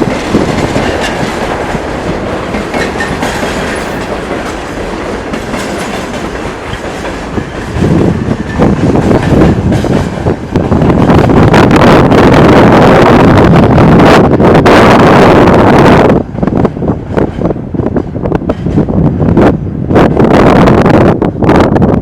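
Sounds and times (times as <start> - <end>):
train wheels clattering: 0.0 - 11.5
heavy train rumble: 0.0 - 22.0.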